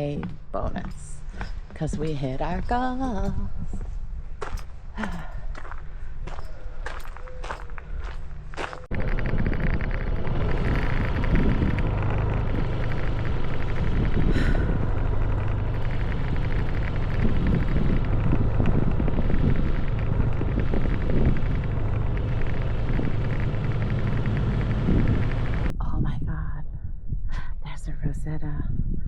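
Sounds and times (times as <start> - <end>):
vehicle engine hum: 0.0 - 25.7
wind buffeting microphone: 0.0 - 29.0.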